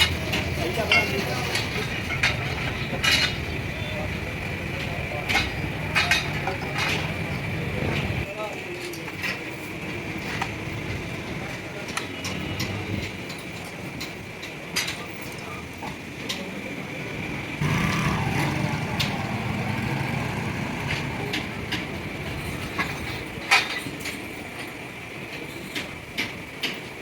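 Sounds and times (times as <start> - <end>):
steady mechanical hum: 0.0 - 8.3.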